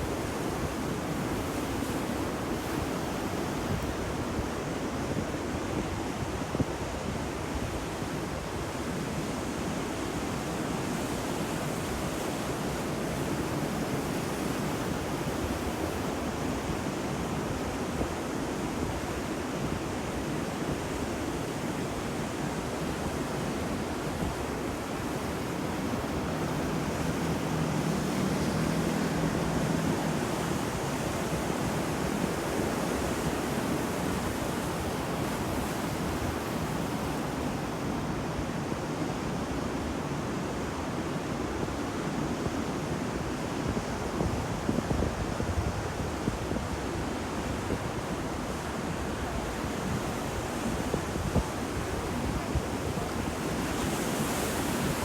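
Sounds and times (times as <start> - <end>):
ocean waves washing in: 21.0 - 44.6, 45.2 - 55.0.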